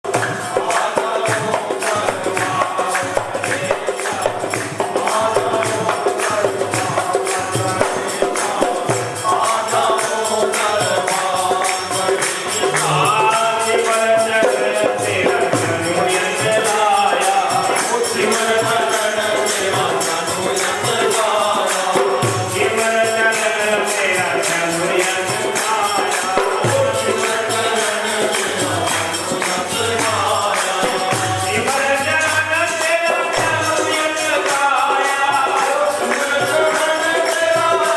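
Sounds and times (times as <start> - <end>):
fast jingling percussion: 0.0 - 37.9
voices chanting: 0.6 - 14.2.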